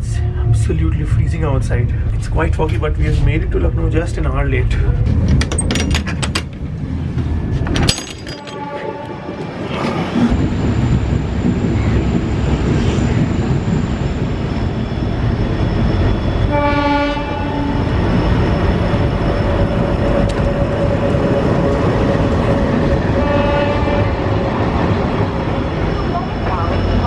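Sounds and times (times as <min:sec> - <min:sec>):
train rumbling: 0:00.0 - 0:27.0
locomotive horn: 0:08.4 - 0:09.7, 0:16.5 - 0:17.9, 0:23.1 - 0:24.2.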